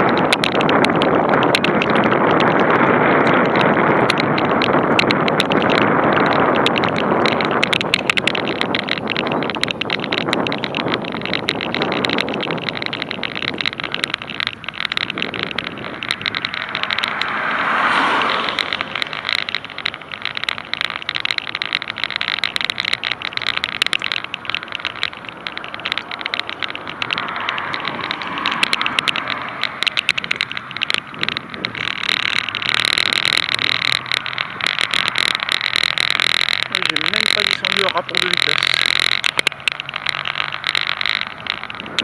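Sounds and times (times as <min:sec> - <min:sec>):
small crackling clicks: 0:00.0 - 0:42.0
tyres hissing on wet road: 0:16.1 - 0:23.5, 0:24.1 - 0:29.9, 0:31.8 - 0:41.6
car swishing past on wet road: 0:16.2 - 0:20.4, 0:27.2 - 0:29.8.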